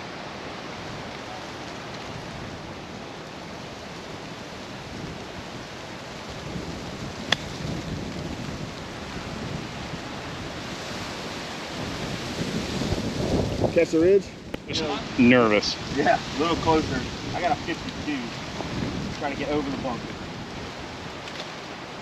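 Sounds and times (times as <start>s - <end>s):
wind buffeting microphone: 0.0s - 22.0s
golf club striking ball: 7.3s - 7.6s.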